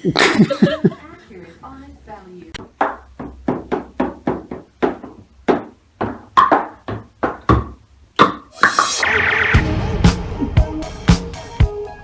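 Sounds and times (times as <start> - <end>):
brief rush of noise: 8.6 - 9.3
upbeat music: 8.6 - 11.8.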